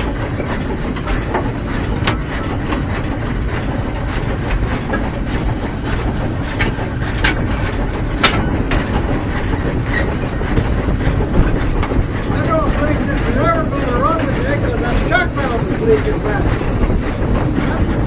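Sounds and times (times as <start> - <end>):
steam locomotive rumble: 0.0 - 18.0
sharp metallic clanks: 7.2 - 9.2.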